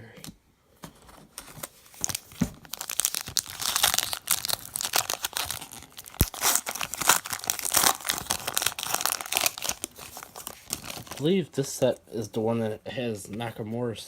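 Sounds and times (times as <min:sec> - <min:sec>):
foil wrapper tearing and crinkling: 0:01.9 - 0:11.3.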